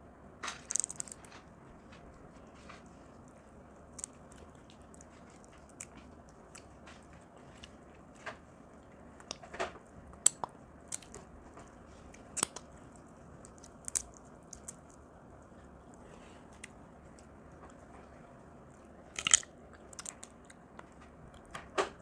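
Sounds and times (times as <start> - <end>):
crab shell cracking: 0.5 - 1.4, 3.9 - 6.7, 9.2 - 11.3, 12.2 - 15.0, 19.1 - 20.5
chewing: 0.7 - 21.5.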